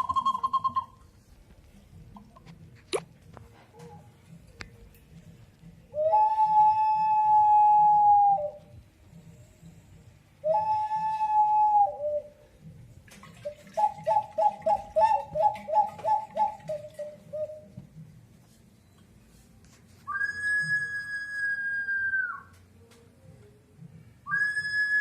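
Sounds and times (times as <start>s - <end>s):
ceramic whistle jar whistling: 0.0s - 1.2s, 5.9s - 8.7s, 10.4s - 12.4s, 13.5s - 17.8s, 20.0s - 22.5s, 24.2s - 25.0s.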